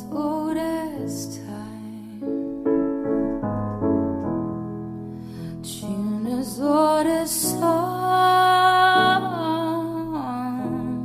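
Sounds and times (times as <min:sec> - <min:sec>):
piano ballad: 0:00.0 - 0:11.0
person singing: 0:05.6 - 0:11.0.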